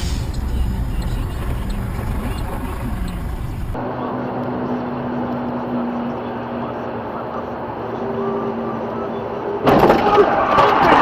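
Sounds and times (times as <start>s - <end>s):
steady droning hum: 0.0s - 3.8s
engine and road rumble: 0.0s - 11.0s.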